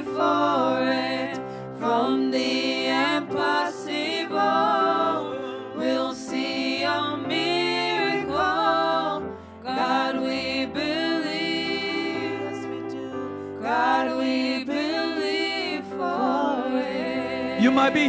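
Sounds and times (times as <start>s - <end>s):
voices singing worship song: 0.0s - 18.0s
singers breathing: 1.5s - 1.7s.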